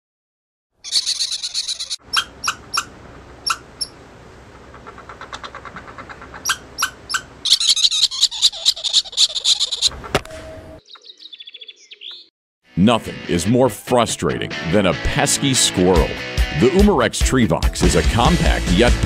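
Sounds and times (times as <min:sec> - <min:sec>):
small birds chirping: 0:00.8 - 0:04.0, 0:04.6 - 0:09.9, 0:10.8 - 0:12.3
sharp bird chip notes: 0:00.9 - 0:04.0, 0:06.4 - 0:08.1.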